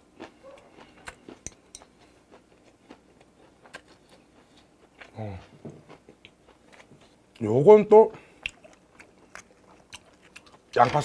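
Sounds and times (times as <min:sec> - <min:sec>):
wet mouth chewing smacks: 0:08.4 - 0:11.0.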